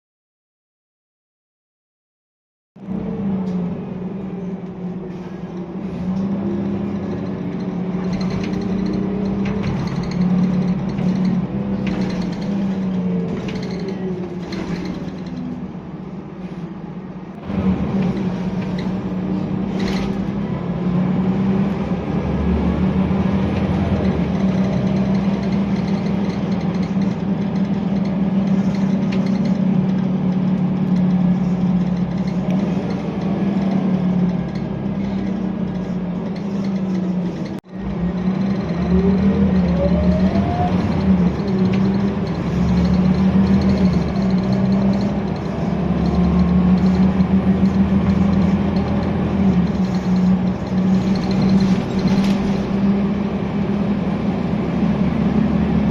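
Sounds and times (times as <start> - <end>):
bus diesel engine running: 2.8 - 55.9.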